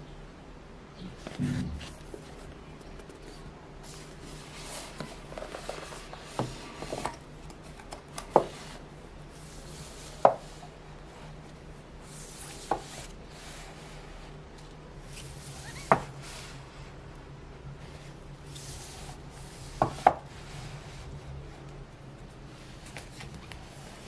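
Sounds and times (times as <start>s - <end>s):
rubbing and rustling: 1.1s - 17.1s.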